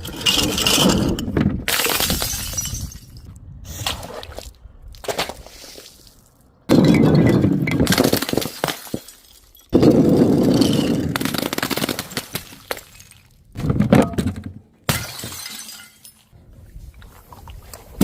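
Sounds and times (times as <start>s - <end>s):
glass bottles smashing: 1.7s - 3.2s, 6.7s - 11.1s, 14.9s - 16.3s.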